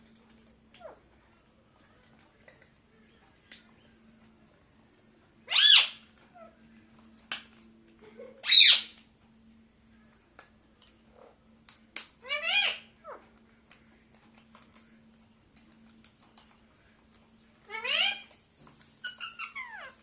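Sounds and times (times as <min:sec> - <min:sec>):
parakeet squawking: 0:05.4 - 0:06.6, 0:08.4 - 0:09.0, 0:12.2 - 0:13.2, 0:17.7 - 0:18.3, 0:19.0 - 0:20.0.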